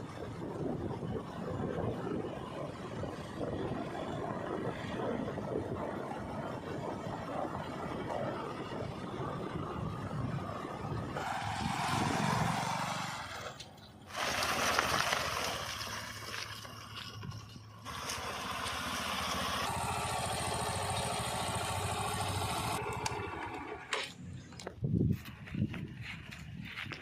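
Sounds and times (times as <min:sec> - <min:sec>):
scraping in wet mud: 0:13.4 - 0:19.4
heavy diesel machinery running: 0:17.6 - 0:24.6.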